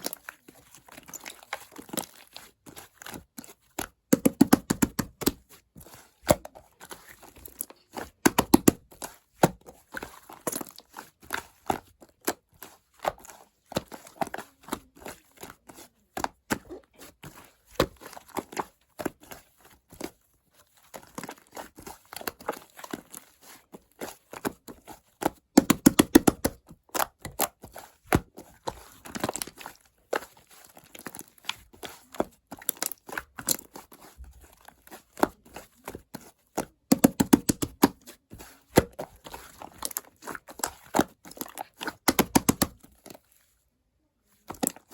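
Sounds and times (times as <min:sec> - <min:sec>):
slime clicking and popping: 0:41.3 - 0:42.7.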